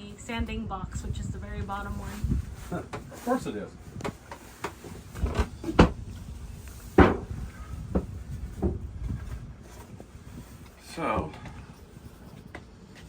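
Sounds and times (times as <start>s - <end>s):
storage boxes knocking: 4.7s - 6.0s, 6.9s - 8.8s.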